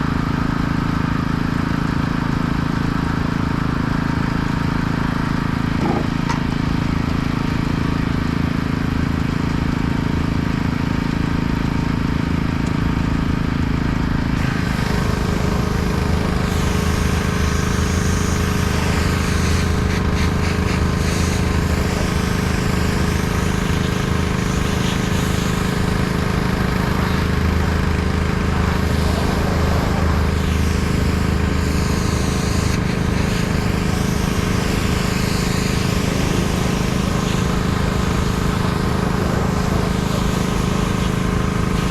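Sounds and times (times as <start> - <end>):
pressure washer engine running: 0.0 - 41.9
water jet hissing: 14.4 - 41.9.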